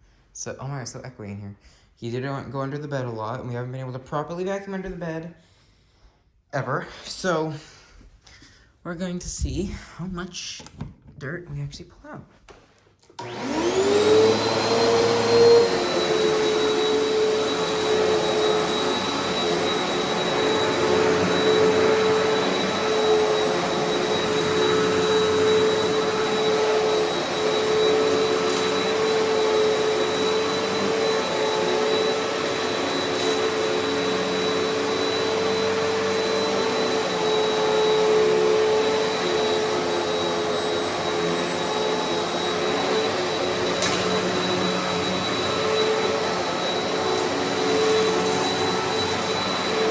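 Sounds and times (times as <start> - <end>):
vacuum cleaner motor whine: 13.0 - 49.9.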